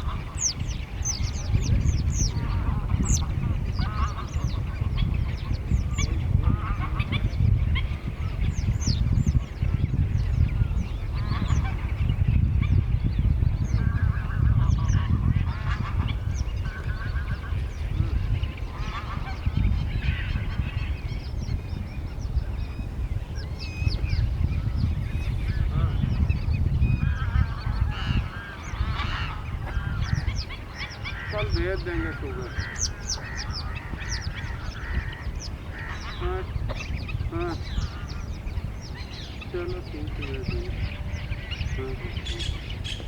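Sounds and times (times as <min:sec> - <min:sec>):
geese honking: 0:00.0 - 0:08.4, 0:13.8 - 0:21.0, 0:26.9 - 0:43.0
high falling bird calls: 0:00.0 - 0:43.0
steady low rumble: 0:00.0 - 0:43.0.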